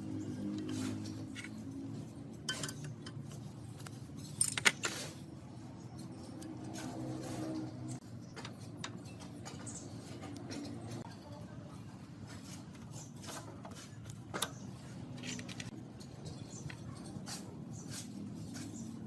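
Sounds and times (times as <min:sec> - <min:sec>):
sharp metal clinks and knocks: 0:01.2 - 0:05.2.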